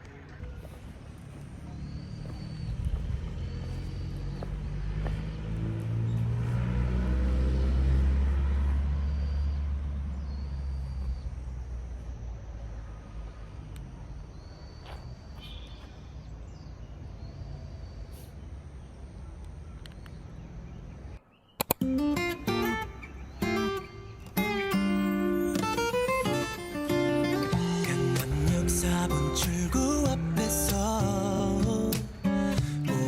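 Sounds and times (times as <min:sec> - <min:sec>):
vehicle engine passing by: 0:00.0 - 0:13.6
outdoor background noise: 0:00.0 - 0:33.0
guitar music: 0:21.8 - 0:33.0.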